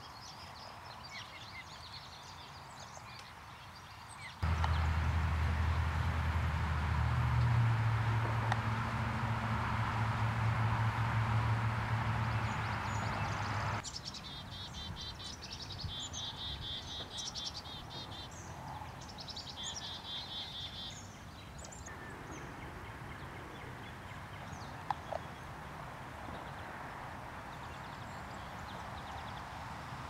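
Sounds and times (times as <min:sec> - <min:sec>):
steady low hum: 0:04.4 - 0:13.8
songbird singing trills: 0:10.2 - 0:18.4.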